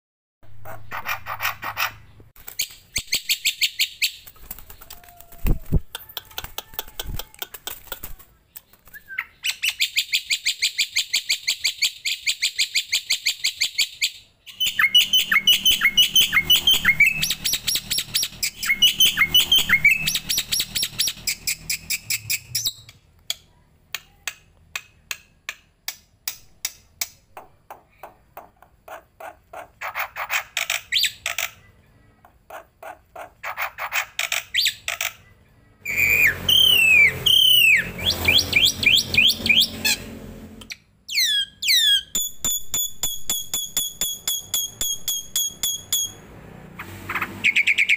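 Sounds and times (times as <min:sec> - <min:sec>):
sharp downward-sweeping bird notes: 0:14.6 - 0:22.8, 0:35.8 - 0:40.6, 0:44.2 - 0:47.9.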